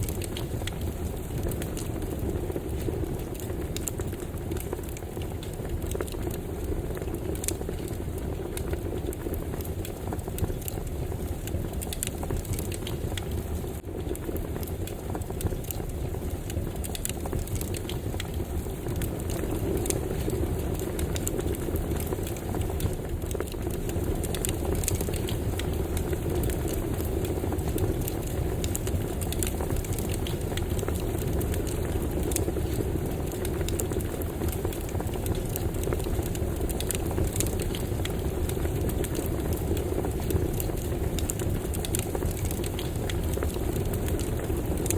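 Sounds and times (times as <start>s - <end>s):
fire crackling and popping: 0.0s - 44.9s
low rush of flames: 0.0s - 44.9s.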